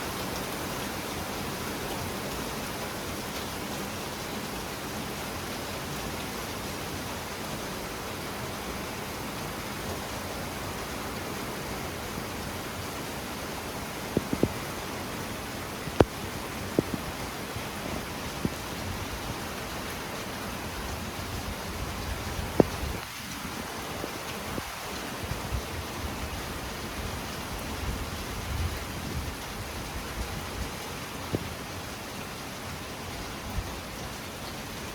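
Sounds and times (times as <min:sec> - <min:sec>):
heavy rain falling: 0:00.0 - 0:34.9
raindrops tapping: 0:14.0 - 0:14.7, 0:22.0 - 0:23.4.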